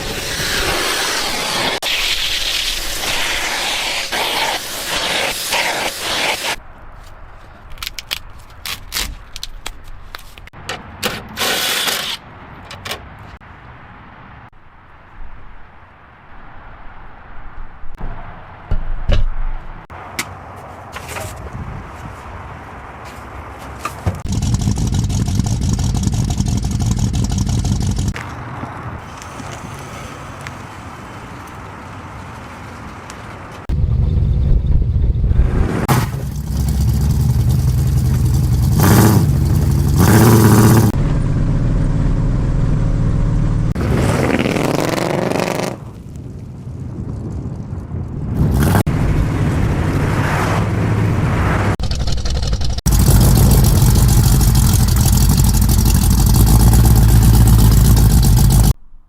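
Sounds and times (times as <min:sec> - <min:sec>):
car engine revving: 0:35.8 - 0:45.8, 0:51.5 - 0:58.8.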